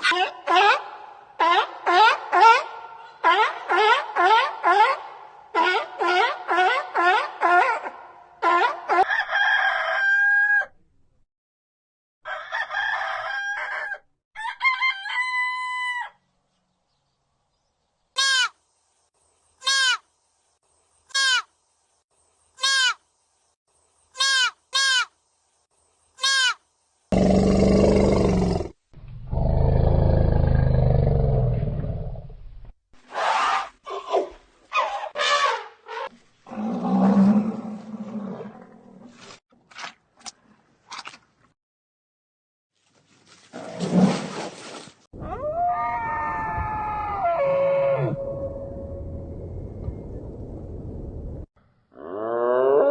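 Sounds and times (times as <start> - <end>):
loud low animal roar: 27.1 - 32.3, 36.5 - 39.1, 45.2 - 48.2, 51.9 - 52.9.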